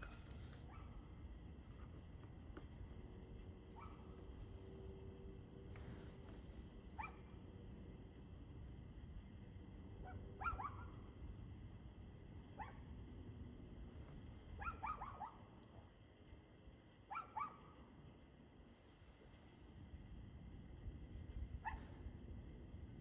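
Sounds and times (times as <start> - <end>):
faint dog barking: 0.0 - 1.2, 3.7 - 4.6, 6.9 - 7.4, 10.0 - 11.2, 12.5 - 13.0, 14.5 - 16.0, 17.0 - 18.0, 21.5 - 22.1
low steady rumble: 0.0 - 23.0.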